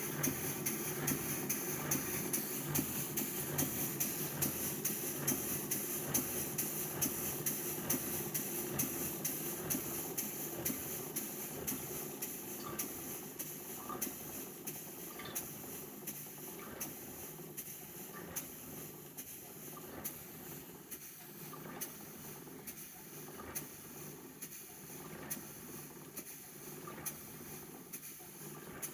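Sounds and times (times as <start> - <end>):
model steam engine beating: 0.0 - 21.4.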